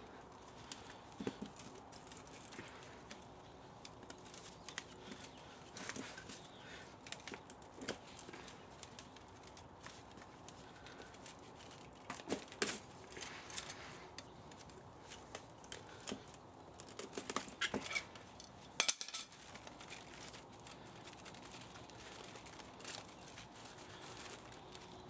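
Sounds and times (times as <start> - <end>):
metal parts and tools clinking: 18.8 - 20.4.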